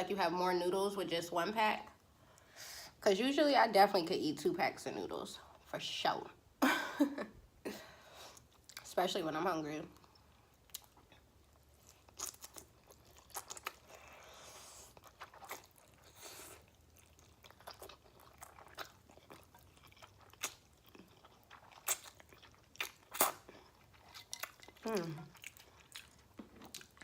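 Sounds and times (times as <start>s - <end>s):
wet chewing of noodles: 10.0s - 27.0s.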